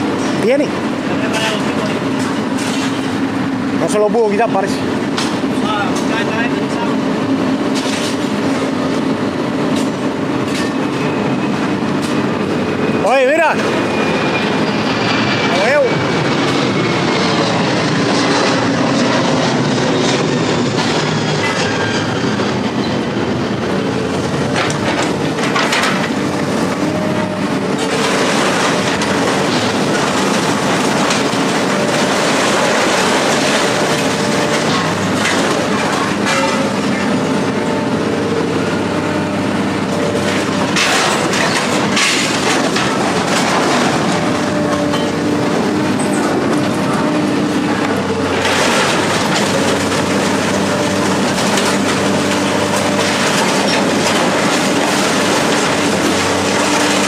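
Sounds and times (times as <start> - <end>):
heavy vehicle engine running: 0.0 - 57.0
rattling and clattering: 13.3 - 37.5, 39.7 - 57.0.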